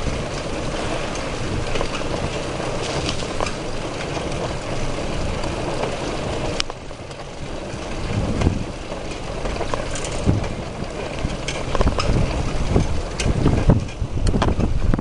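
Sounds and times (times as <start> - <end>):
bicycle rolling rumble: 0.0 - 15.0
wind on microphone: 7.4 - 15.0.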